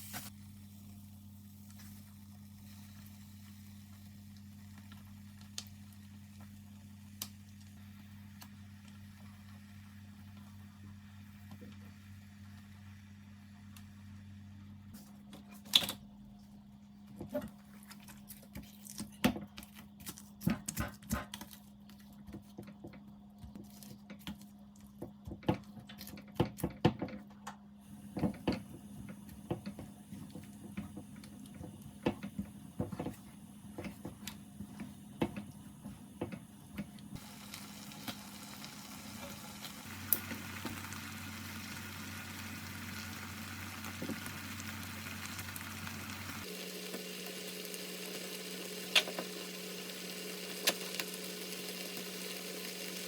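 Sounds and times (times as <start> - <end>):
food frying hiss: 0.0 - 14.1, 27.9 - 53.0.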